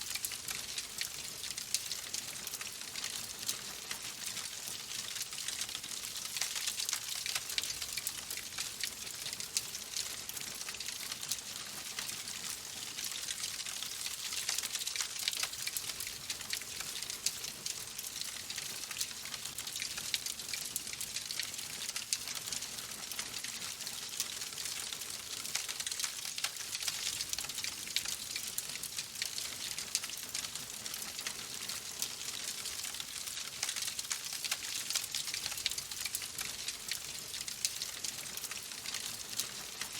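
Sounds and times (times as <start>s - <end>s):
wood fire crackling: 0.1s - 12.1s.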